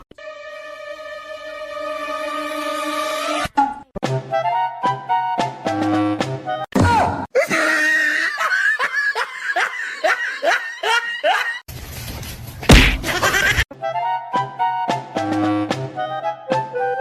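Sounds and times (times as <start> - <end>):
person laughing: 7.4 - 11.6, 12.7 - 13.6.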